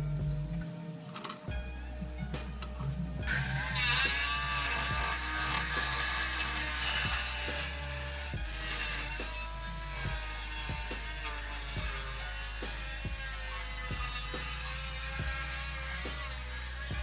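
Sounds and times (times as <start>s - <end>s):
background music with steady beat: 0.0s - 17.0s
rasping scraping noise: 0.0s - 17.0s.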